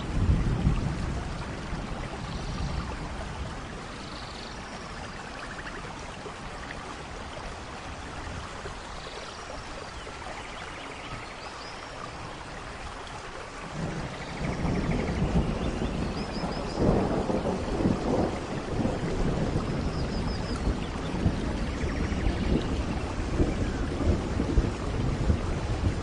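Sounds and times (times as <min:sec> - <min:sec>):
thunder rumble: 0:00.0 - 0:05.8, 0:13.6 - 0:26.0
steady rain: 0:00.0 - 0:26.0.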